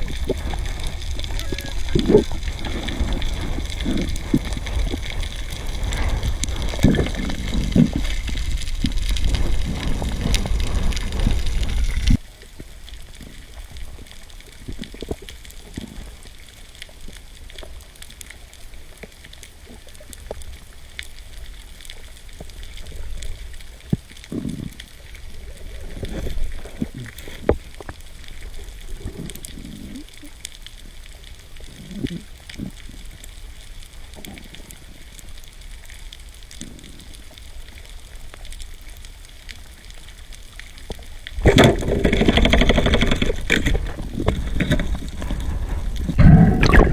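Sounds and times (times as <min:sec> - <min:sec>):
rushing water: 0:00.0 - 0:46.9
underwater swishes: 0:00.0 - 0:46.9
sharp clicks underwater: 0:40.3 - 0:46.9.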